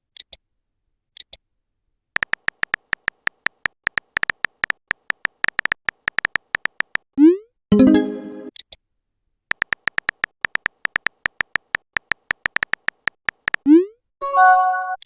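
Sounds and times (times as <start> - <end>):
soft ticks: 2.2 - 7.0, 9.5 - 13.7.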